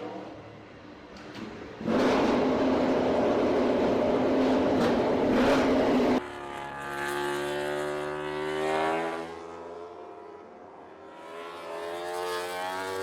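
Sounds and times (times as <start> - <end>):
motorcycle accelerating: 1.8 - 10.0
racing motorcycle engine: 1.8 - 13.0.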